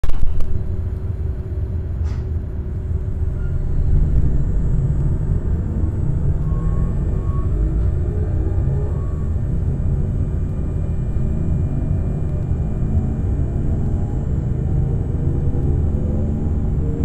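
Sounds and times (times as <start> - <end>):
electric train rumble: 0.0 - 17.0
thin high whine: 2.0 - 17.0.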